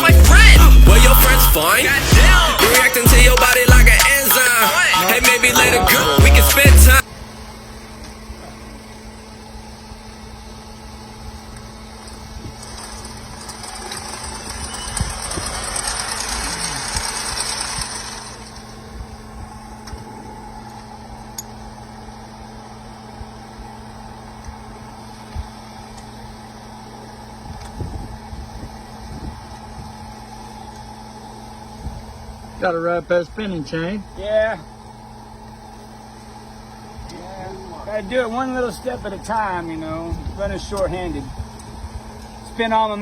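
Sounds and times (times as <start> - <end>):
loud hissing noise: 0.0 - 7.2, 13.7 - 18.6
drilling rig engine hum: 0.0 - 43.0.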